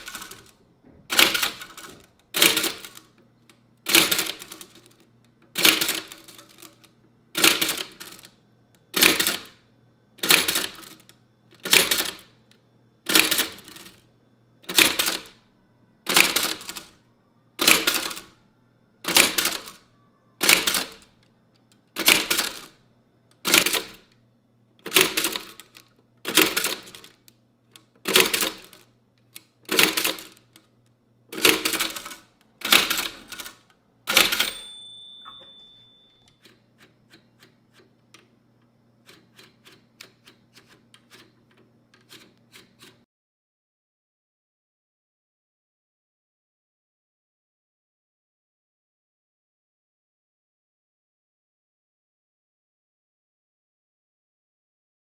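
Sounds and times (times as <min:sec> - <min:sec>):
typewriter clacking: 0:00.0 - 0:00.5, 0:01.1 - 0:03.1, 0:03.9 - 0:05.0, 0:05.6 - 0:08.3, 0:09.0 - 0:09.6, 0:10.2 - 0:12.3, 0:13.1 - 0:14.0, 0:14.7 - 0:15.4, 0:16.1 - 0:16.9, 0:17.6 - 0:18.3, 0:19.1 - 0:19.8, 0:20.4 - 0:21.1, 0:22.0 - 0:22.8, 0:23.5 - 0:24.1, 0:24.8 - 0:27.2, 0:28.0 - 0:30.6, 0:31.4 - 0:36.6
short ringing tone: 0:34.4 - 0:36.4.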